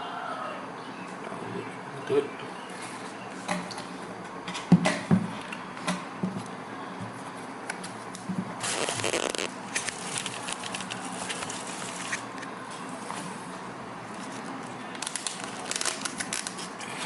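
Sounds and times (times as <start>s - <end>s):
packaging rustling and scraping: 8.6s - 12.3s, 14.2s - 17.0s.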